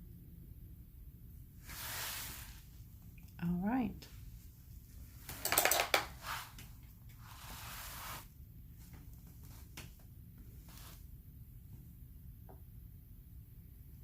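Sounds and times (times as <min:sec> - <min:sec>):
rustling scrape: 0:01.6 - 0:02.8, 0:06.1 - 0:09.8, 0:10.4 - 0:11.2.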